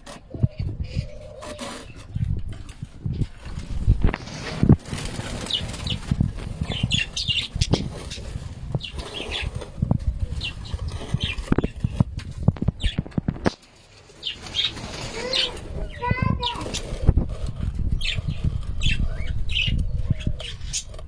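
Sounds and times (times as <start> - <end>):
birds calling and squawking: 0.0 - 21.0
wings flapping: 2.6 - 21.0.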